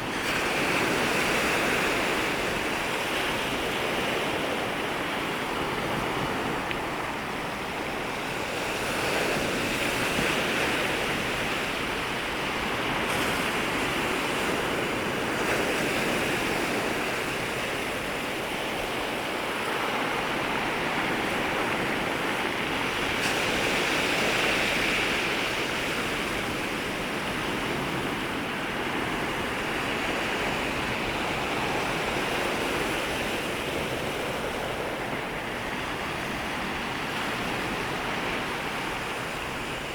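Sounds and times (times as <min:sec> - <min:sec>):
sea waves breaking: 0:00.0 - 0:39.9.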